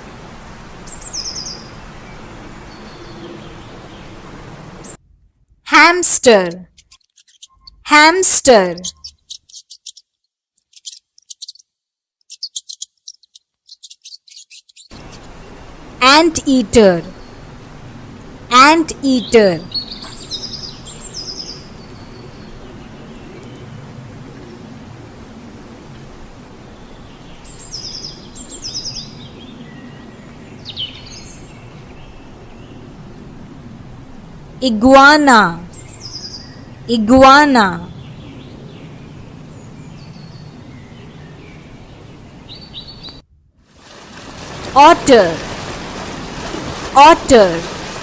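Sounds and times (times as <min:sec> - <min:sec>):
outdoor background noise: 0:00.0 - 0:48.0
birds chirping: 0:00.6 - 0:05.0, 0:06.7 - 0:11.7, 0:12.3 - 0:17.7, 0:19.1 - 0:23.8, 0:26.6 - 0:33.0, 0:35.1 - 0:43.2
hamster squeaking: 0:08.8 - 0:10.0, 0:10.6 - 0:11.6, 0:12.3 - 0:14.9.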